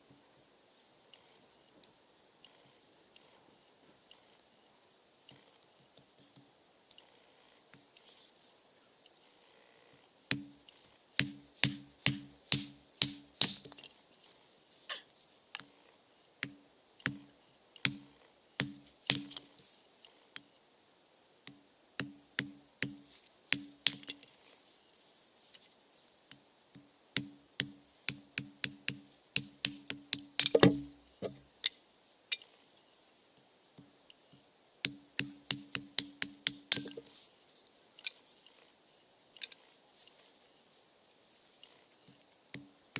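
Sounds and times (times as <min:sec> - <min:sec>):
firewood splitting knocks: 0:29.7 - 0:31.4.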